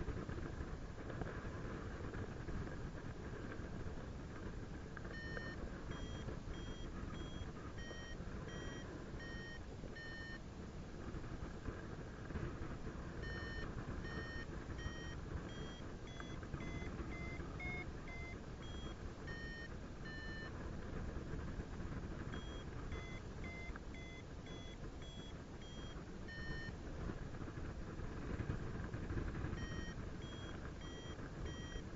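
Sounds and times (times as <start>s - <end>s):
variometer beeping: 5.0s - 10.4s, 13.1s - 20.6s, 22.0s - 26.8s, 29.3s - 31.9s.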